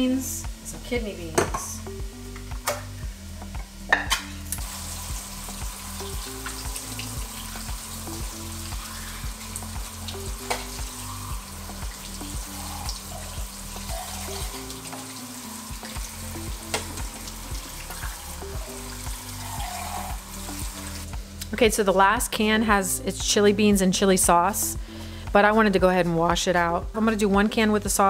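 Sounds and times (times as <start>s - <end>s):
background music with beat: 0.0s - 28.0s
beef sizzling in a frying pan: 3.2s - 21.4s.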